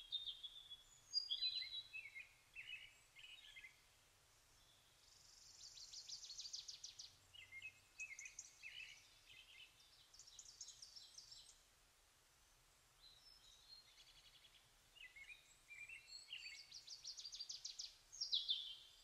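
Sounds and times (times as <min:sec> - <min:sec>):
bird chirping: 0:00.0 - 0:03.9, 0:04.5 - 0:11.7, 0:13.0 - 0:19.0.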